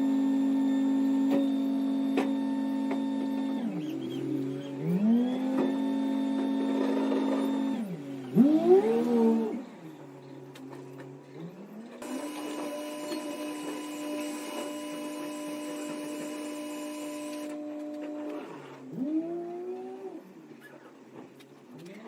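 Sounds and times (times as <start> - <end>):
small electric motor humming: 0.0 - 20.3.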